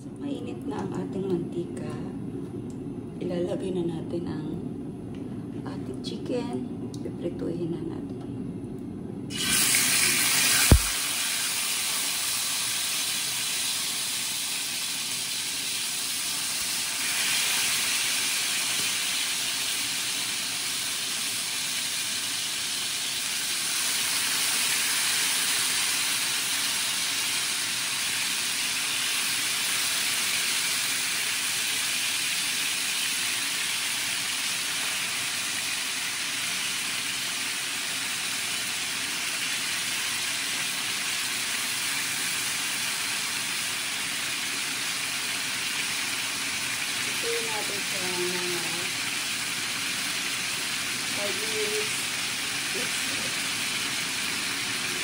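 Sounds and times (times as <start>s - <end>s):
chicken sizzling in hot oil: 9.3s - 55.0s
sharp knock: 10.7s - 11.0s.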